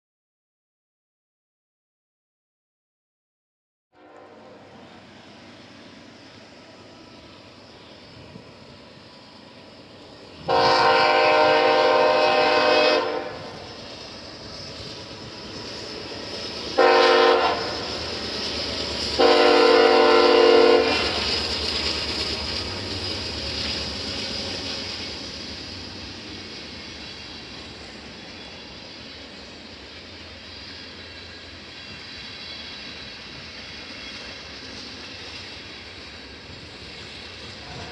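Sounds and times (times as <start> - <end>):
locomotive air horn blasts: 4.0 - 4.6, 10.5 - 13.6, 16.8 - 18.0, 19.2 - 21.2
train rumbling past: 4.0 - 37.9.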